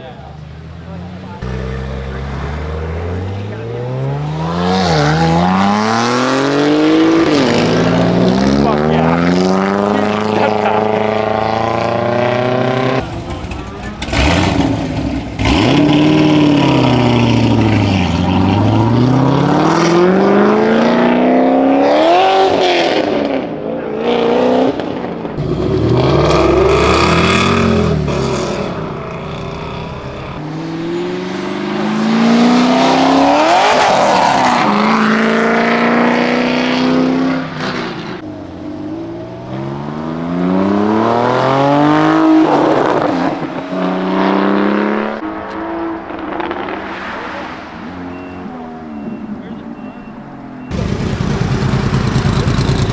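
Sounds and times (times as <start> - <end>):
car engines revving past: 0.0 - 52.9.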